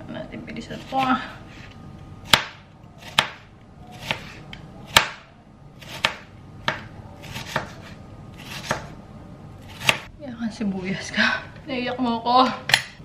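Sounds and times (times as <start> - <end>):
knife chopping on cutting board: 2.3 - 8.9, 9.7 - 10.0.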